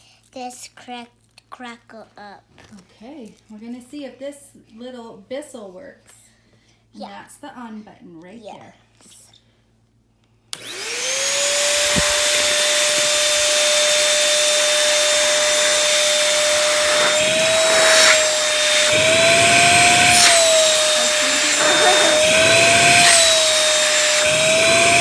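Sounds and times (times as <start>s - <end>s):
vacuum cleaner running: 10.6s - 25.0s.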